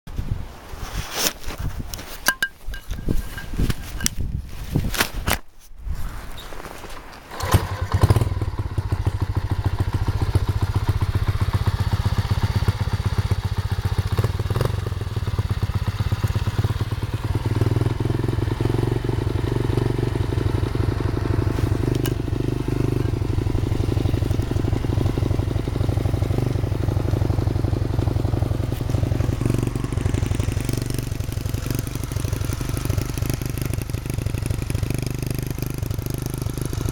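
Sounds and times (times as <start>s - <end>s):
motorcycle engine starting and idling: 7.2s - 36.9s.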